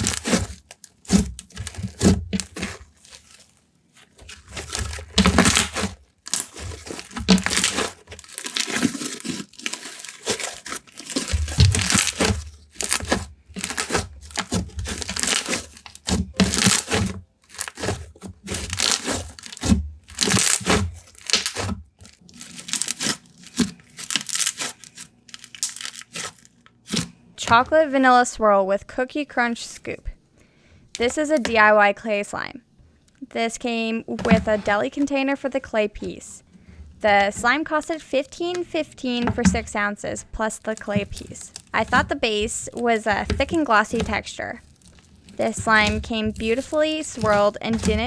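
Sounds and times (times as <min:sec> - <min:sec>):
slime crackling and clicking: 0:18.5 - 0:27.0, 0:40.6 - 0:48.0.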